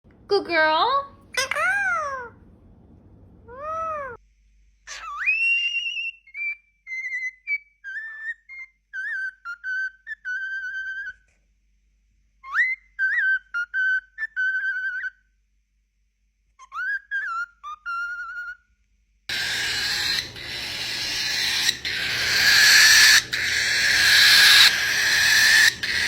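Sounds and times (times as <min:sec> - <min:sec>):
bird whistling a tune: 0:04.9 - 0:11.2, 0:12.4 - 0:15.2, 0:16.6 - 0:18.6, 0:19.3 - 0:26.0.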